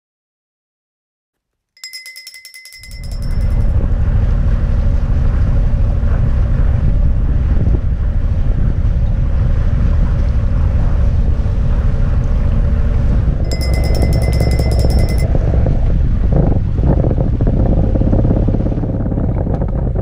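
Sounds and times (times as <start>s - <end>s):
boat engine drone: 1.9s - 19.3s
wind buffeting microphone: 6.2s - 12.1s, 15.3s - 20.0s.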